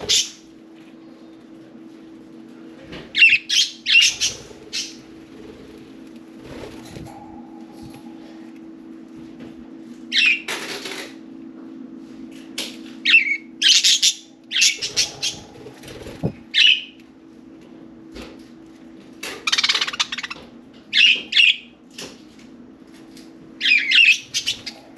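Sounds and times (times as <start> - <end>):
wings flapping: 14.8 - 16.6.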